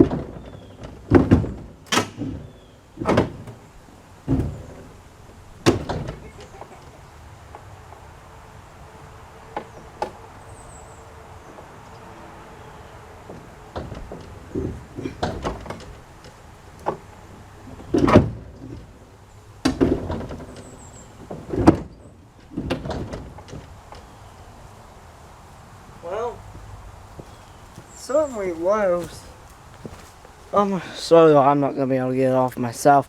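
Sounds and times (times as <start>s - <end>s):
metal clunks and bangs: 0.0s - 8.1s, 13.2s - 24.1s.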